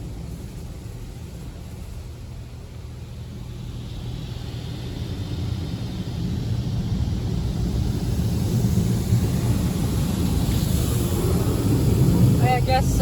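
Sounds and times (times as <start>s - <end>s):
water spray hitting car: 3.8s - 13.0s.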